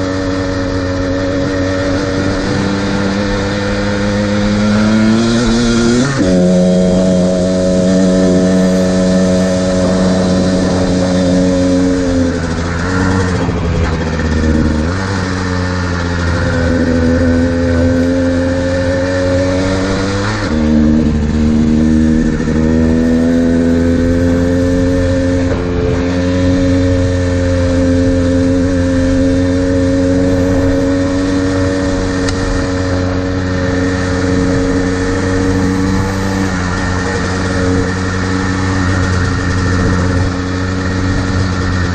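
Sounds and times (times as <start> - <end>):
two-stroke dirt bike engine: 0.0 - 41.9.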